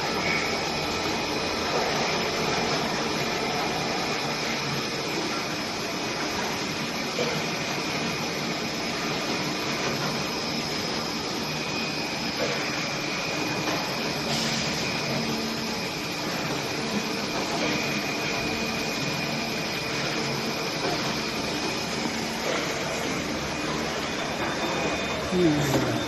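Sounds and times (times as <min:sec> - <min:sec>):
machine whirring with hiss: 0:00.0 - 0:26.0.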